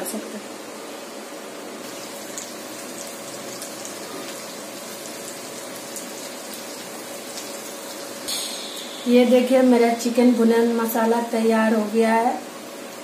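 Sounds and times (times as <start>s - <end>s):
food sizzling in oil: 1.6s - 13.0s.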